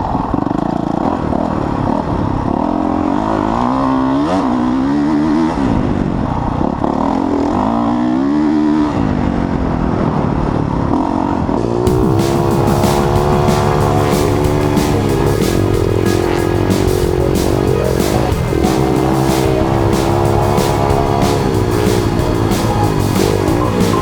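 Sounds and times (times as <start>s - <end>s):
dirt bike engine revving: 11.9s - 24.0s.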